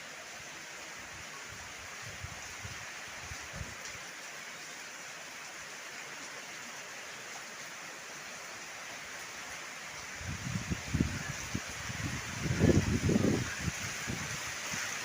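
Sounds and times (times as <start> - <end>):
heavy rain hissing: 0.0 - 15.0
strong wind gusting: 10.2 - 14.8.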